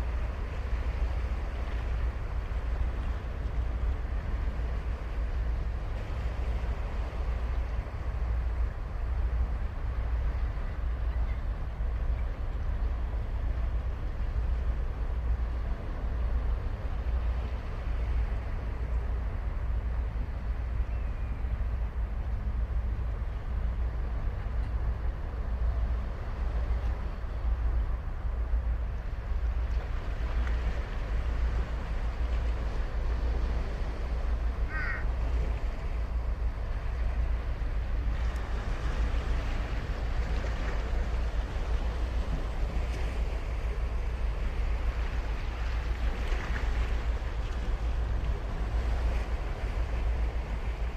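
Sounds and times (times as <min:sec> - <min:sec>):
ocean waves washing: 0:21.5 - 0:50.9
crow cawing: 0:34.7 - 0:35.2.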